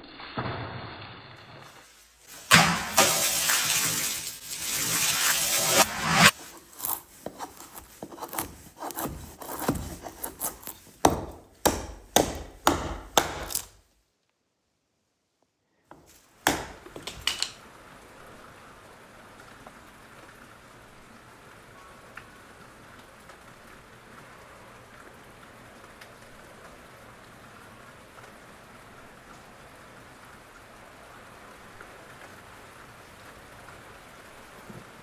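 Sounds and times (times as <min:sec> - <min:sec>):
knife chopping into wood: 0:05.8 - 0:13.8, 0:15.9 - 0:17.6.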